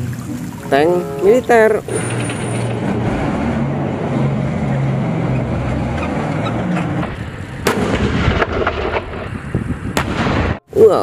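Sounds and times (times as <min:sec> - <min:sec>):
tank engine droning: 0:00.0 - 0:09.3
loud bang: 0:07.0 - 0:09.4, 0:10.0 - 0:10.6.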